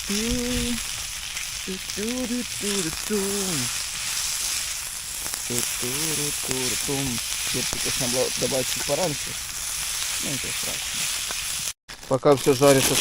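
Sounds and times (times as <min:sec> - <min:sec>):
man humming: 0:00.0 - 0:00.8, 0:01.7 - 0:03.7
vegetables sizzling over fire: 0:00.0 - 0:13.0.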